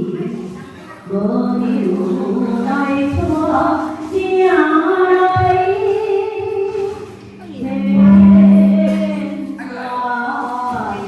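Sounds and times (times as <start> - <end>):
woman singing chant-like melody: 0.0 - 11.0.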